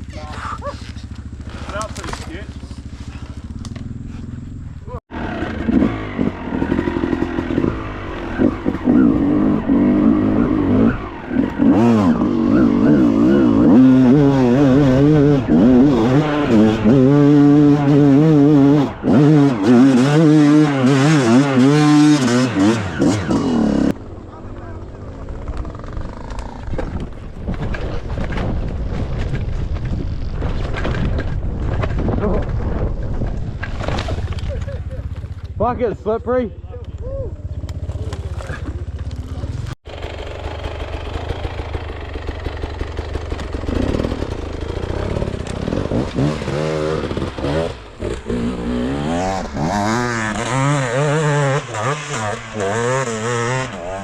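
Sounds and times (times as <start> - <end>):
dirt bike engine revving: 0.0 - 28.3, 37.2 - 54.0
wind buffeting microphone: 26.6 - 33.8.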